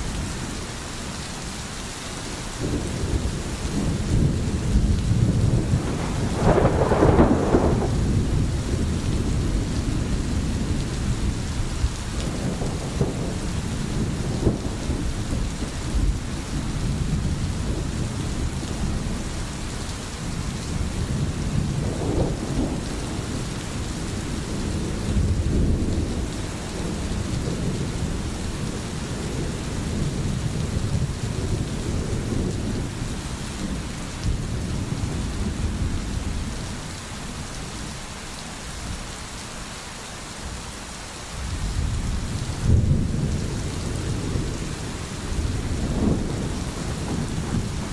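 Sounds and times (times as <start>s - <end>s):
heavy rain: 0.0s - 47.9s
low rolling thunder: 2.6s - 37.7s, 41.4s - 47.9s.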